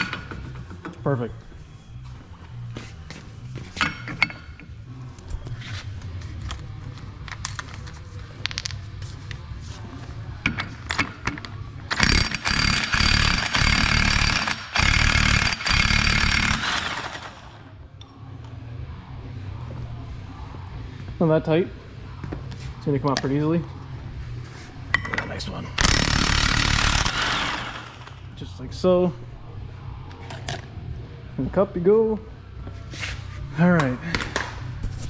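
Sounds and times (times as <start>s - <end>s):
impact wrench hammering: 10.5s - 17.5s, 25.8s - 28.2s.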